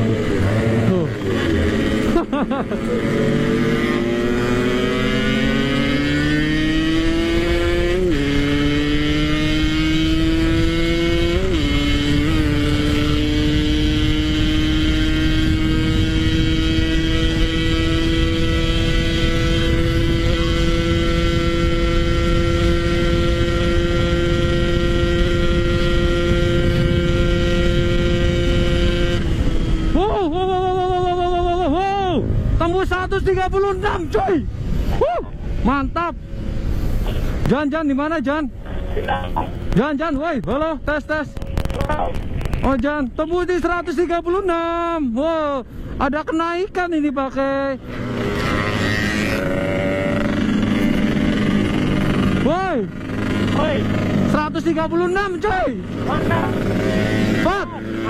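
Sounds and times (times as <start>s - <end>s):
motorcycle engine accelerating: 0.0s - 43.0s, 47.5s - 58.0s.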